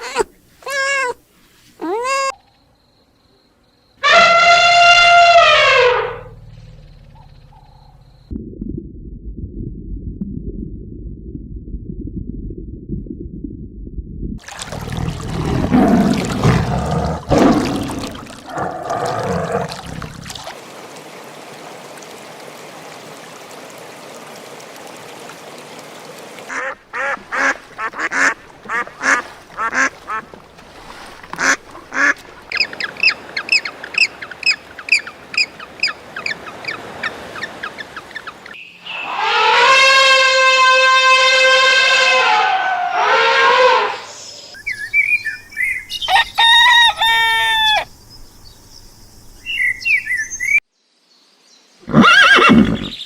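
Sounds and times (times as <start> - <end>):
loud held animal call: 4.0 - 6.4, 38.9 - 44.3, 46.1 - 47.9.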